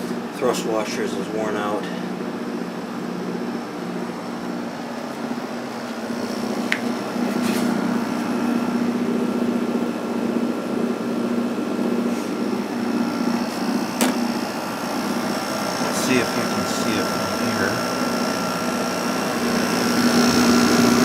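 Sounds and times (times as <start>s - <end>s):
air conditioner humming: 0.0s - 21.0s.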